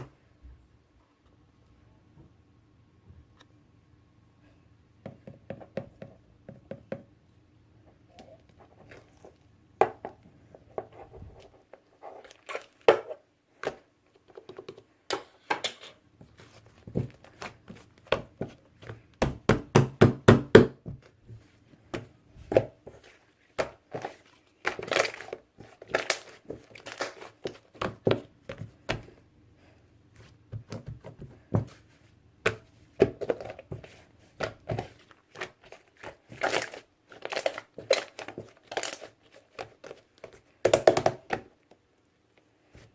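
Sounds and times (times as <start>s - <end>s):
hands squishing slime: 21.0s - 41.5s.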